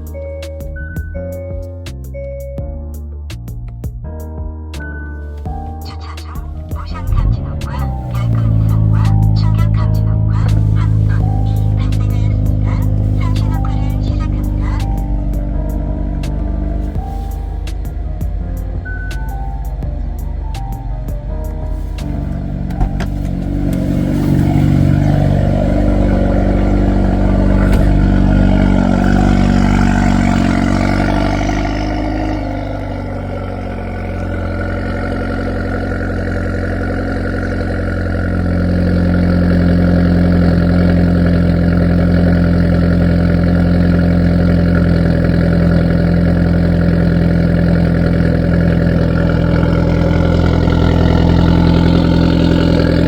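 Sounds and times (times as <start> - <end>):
car engine idling: 5.2 - 53.0.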